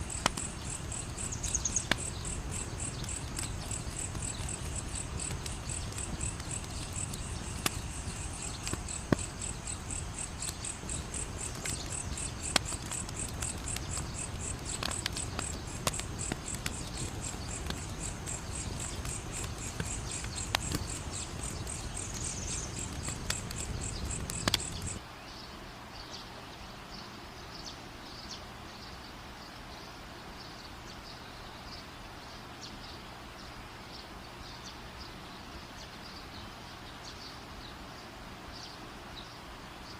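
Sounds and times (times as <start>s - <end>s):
crickets chirping: 0.0s - 25.0s
fire crackling and popping: 0.0s - 25.0s.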